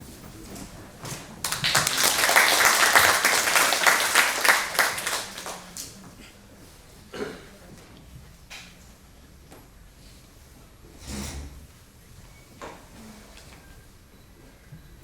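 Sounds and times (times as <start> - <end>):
audience applauding: 1.1 - 6.0.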